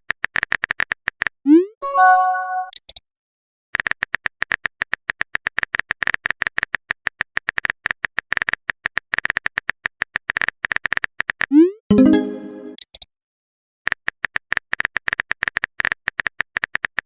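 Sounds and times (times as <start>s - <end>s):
rapid short sharp clicks: 3.8s - 11.5s, 13.9s - 17.0s.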